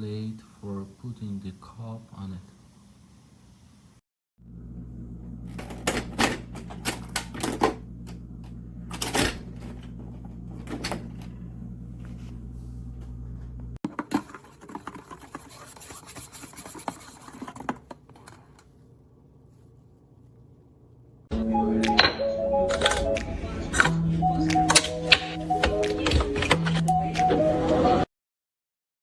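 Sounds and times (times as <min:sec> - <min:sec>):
coffee machine humming: 0:04.4 - 0:18.5.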